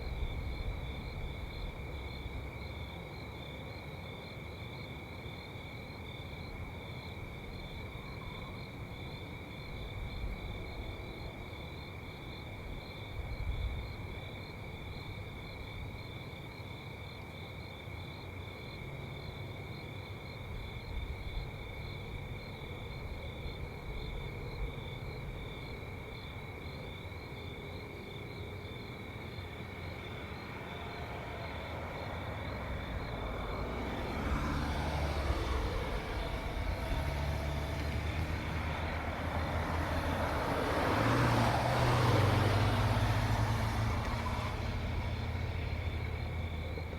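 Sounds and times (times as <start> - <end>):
continuous high insect trill: 0.0 - 46.9
low rumble of traffic: 0.0 - 46.9
vehicle approaching: 29.1 - 46.9.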